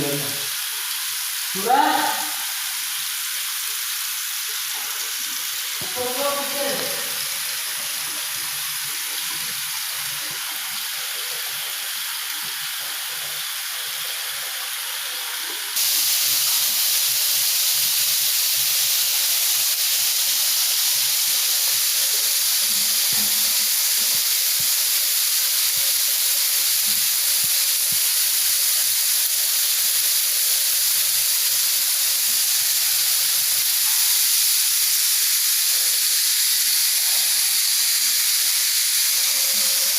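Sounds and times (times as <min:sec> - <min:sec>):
water spraying under pressure: 0:00.0 - 0:39.9.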